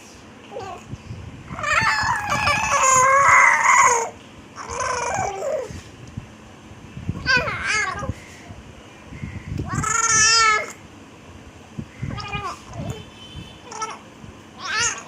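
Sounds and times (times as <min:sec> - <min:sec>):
baby high-pitched vocal noise: 0:07.2 - 0:08.2, 0:09.6 - 0:10.8, 0:12.1 - 0:14.0, 0:14.6 - 0:15.0.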